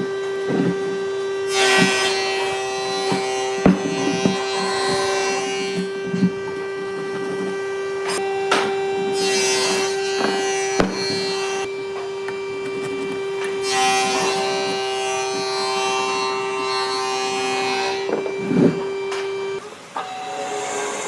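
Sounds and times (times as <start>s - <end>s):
steady hum: 0.0s - 19.6s
rasping scrapes on wood: 0.4s - 11.7s, 18.1s - 18.9s
sharp knocks: 3.1s - 6.3s, 8.1s - 11.6s.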